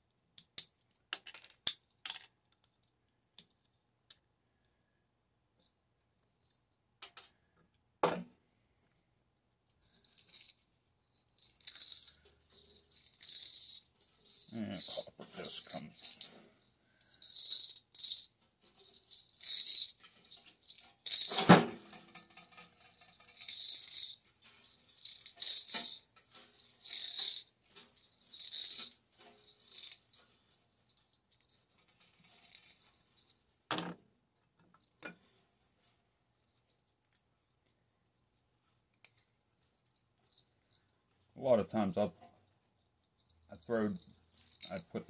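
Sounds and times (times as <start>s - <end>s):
metal parts rattling and scraping: 9.8s - 33.6s, 43.0s - 45.0s.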